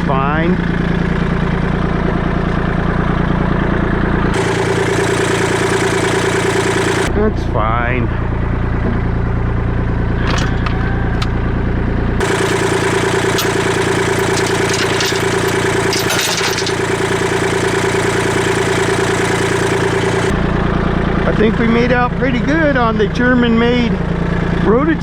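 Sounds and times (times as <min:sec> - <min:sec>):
tractor diesel engine running: 0:00.0 - 0:25.0
light clatter: 0:13.3 - 0:16.8.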